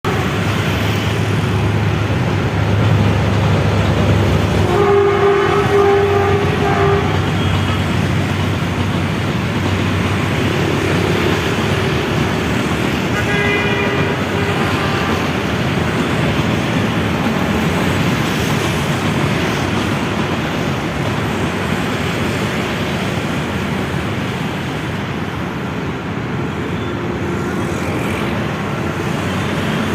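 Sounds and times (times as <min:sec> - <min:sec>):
train rumbling: 0:00.0 - 0:29.9
train horn: 0:04.6 - 0:07.7, 0:13.1 - 0:15.3.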